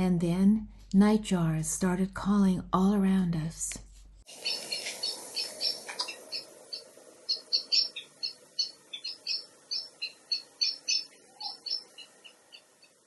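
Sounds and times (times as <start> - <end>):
nightjars calling: 4.3 - 13.0.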